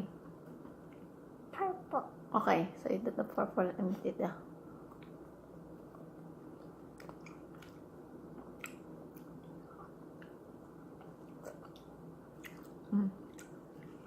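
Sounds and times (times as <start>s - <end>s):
low room hum: 0.0s - 14.0s
faint chewing: 4.8s - 14.0s.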